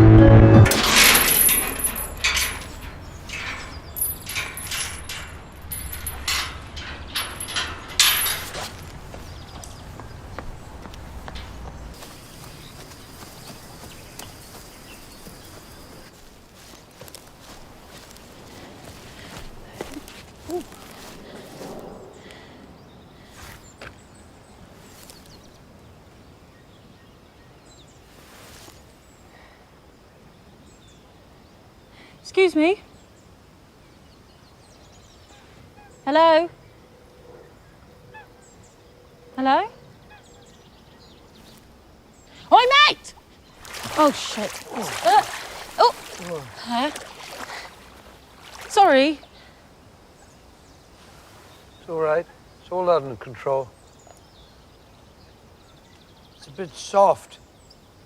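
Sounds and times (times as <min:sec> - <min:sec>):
brief rustle: 0:00.7 - 0:12.9, 0:28.1 - 0:28.9
footsteps through wet vegetation: 0:08.2 - 0:22.0, 0:23.2 - 0:25.8, 0:28.0 - 0:29.0, 0:42.6 - 0:49.4
faint bird chirps: 0:11.1 - 0:25.6.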